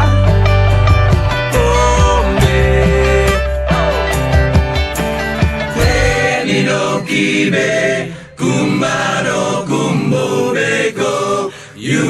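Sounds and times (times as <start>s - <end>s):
group of voices chanting: 5.8s - 12.0s.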